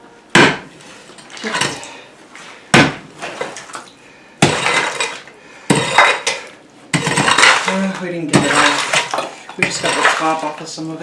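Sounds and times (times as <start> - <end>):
metal tool striking concrete: 4.4 - 10.6
concrete slab rattling and grinding: 7.0 - 10.6.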